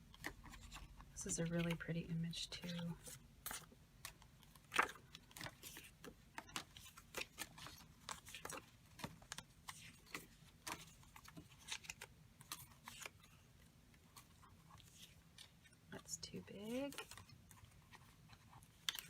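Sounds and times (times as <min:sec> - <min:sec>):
paper rustling and tapping: 0:03.5 - 0:13.2.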